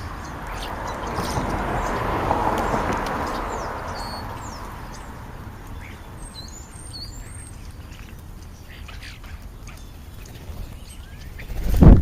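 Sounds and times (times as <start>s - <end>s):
vehicle passing by: 0.0s - 7.7s
high bird chirps: 2.6s - 11.8s.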